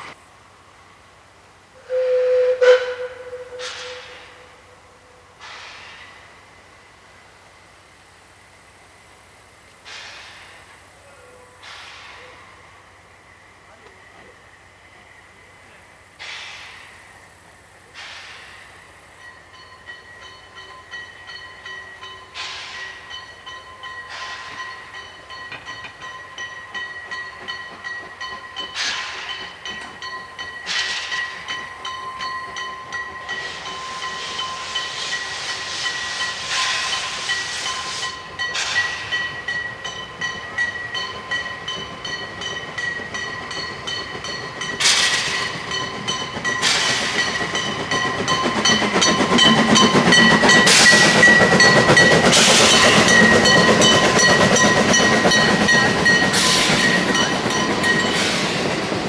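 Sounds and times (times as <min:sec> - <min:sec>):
steam hissing: 0:00.0 - 0:59.0
steam train approaching: 0:00.0 - 0:59.0.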